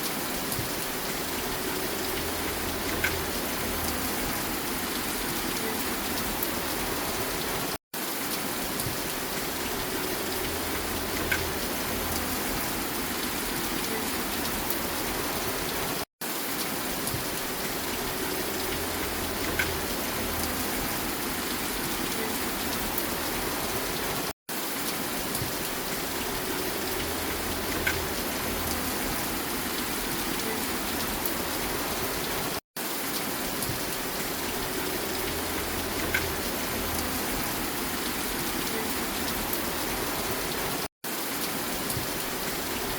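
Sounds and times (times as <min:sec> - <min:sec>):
rain falling: 0:00.0 - 0:42.9
light drips: 0:18.0 - 0:23.1.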